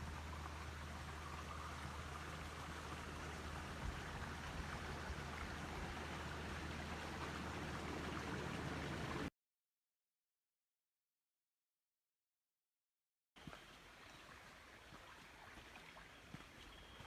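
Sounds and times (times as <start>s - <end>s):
flowing creek: 0.0s - 9.3s, 13.4s - 17.0s.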